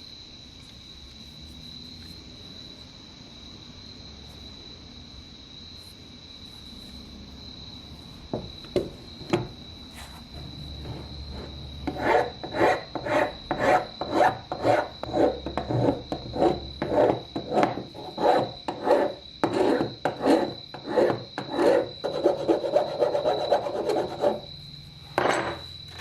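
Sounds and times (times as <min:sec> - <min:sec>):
rasping strokes on metal: 0:10.7 - 0:24.5.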